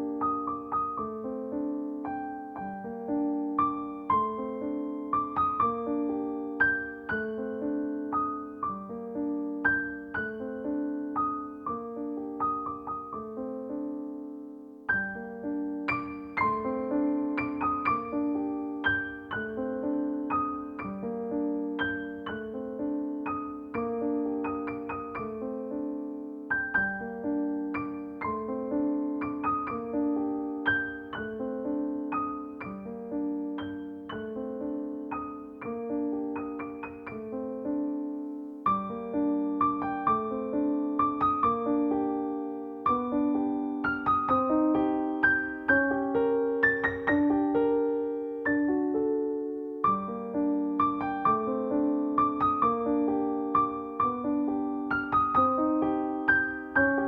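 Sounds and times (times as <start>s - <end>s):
piano music: 0.0s - 57.0s.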